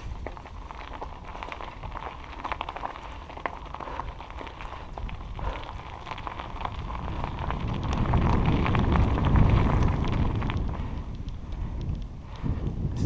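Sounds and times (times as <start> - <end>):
bicycle tyres crackling on trail: 0.0 - 13.0
wind rumbling on microphone: 0.0 - 13.0.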